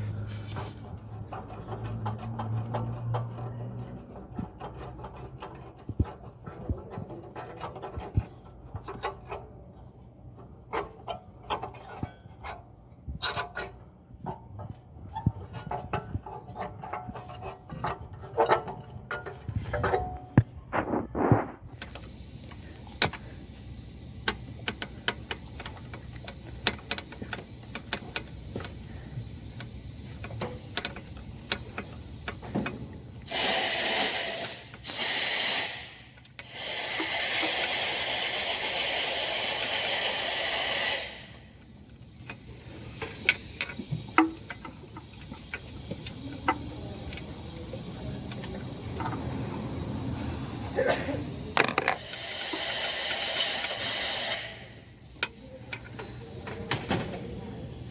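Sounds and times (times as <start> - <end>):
loud spraying hisses: 21.8 - 57.9.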